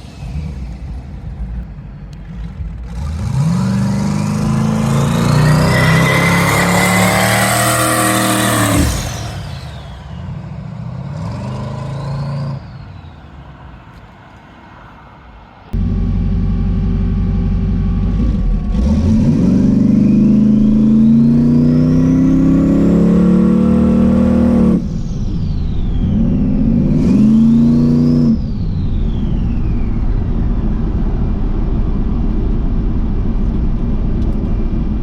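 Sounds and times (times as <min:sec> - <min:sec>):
car engine accelerating hard: 0:00.0 - 0:14.1, 0:15.6 - 0:35.0.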